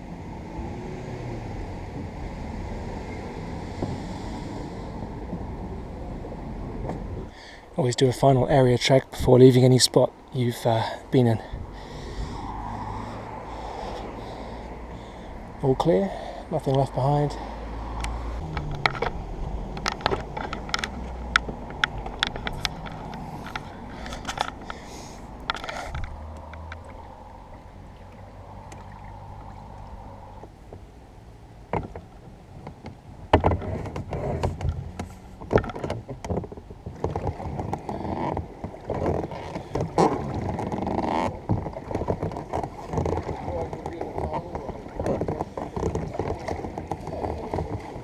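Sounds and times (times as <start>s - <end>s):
boat knocks and clunks: 3.0s - 7.4s, 17.9s - 48.0s.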